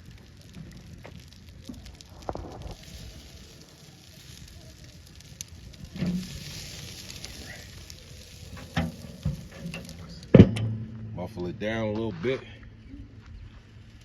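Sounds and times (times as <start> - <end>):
wood fire crackling and hissing: 0.0 - 14.0.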